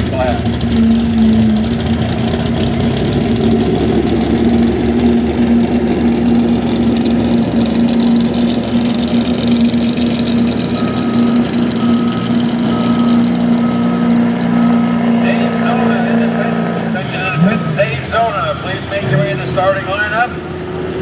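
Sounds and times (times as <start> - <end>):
diesel truck engine idling: 0.0 - 21.0
short repeating beep: 10.8 - 18.0.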